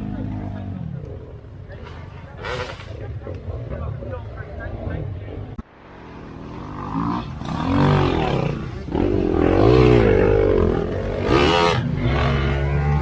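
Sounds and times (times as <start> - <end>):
off-road vehicle engine revving: 6.3 - 13.0.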